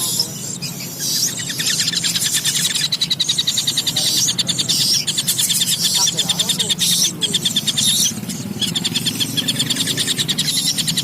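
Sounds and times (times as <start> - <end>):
kingfisher calling: 0.0 - 11.0.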